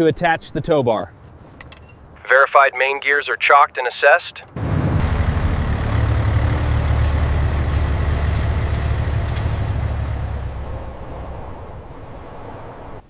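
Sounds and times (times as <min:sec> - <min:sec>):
heavy vehicle engine running: 0:04.6 - 0:13.0.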